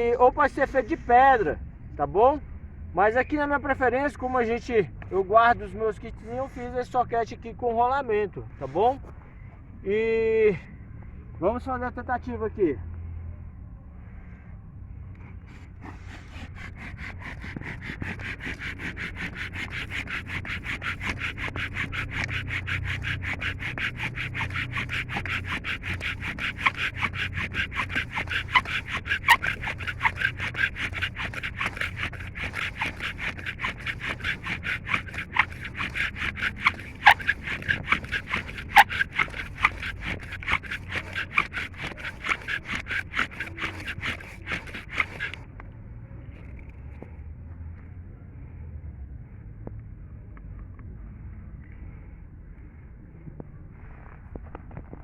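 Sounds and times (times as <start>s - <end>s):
wooden spindle squeaking on board: 15.8s - 45.4s.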